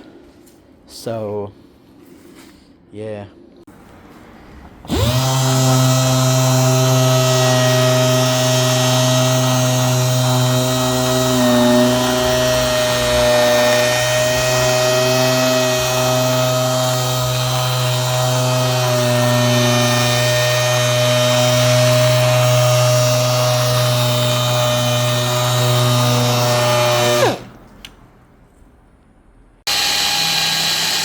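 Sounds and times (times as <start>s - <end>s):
orbital polisher humming: 4.9s - 27.5s, 29.7s - 31.0s.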